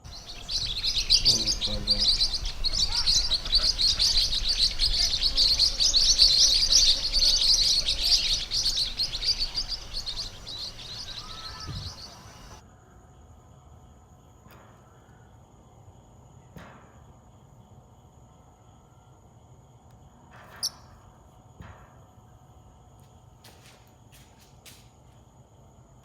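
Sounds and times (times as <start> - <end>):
parrotlets chirping: 0.0 - 12.6.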